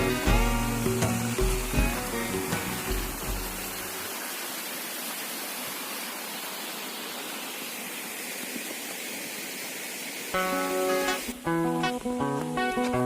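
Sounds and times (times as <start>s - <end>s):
music: 0.0s - 4.0s, 10.4s - 13.0s.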